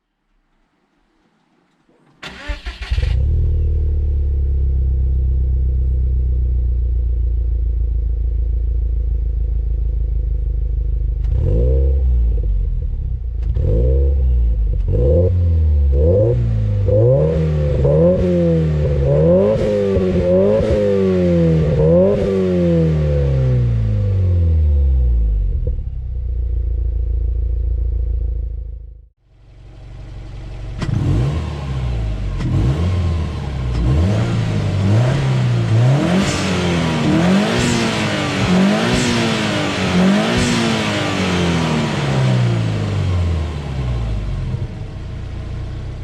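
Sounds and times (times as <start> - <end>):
car engine starting and idling: 1.7 - 46.0
engine revving: 2.2 - 5.0, 11.2 - 26.0, 30.6 - 45.0.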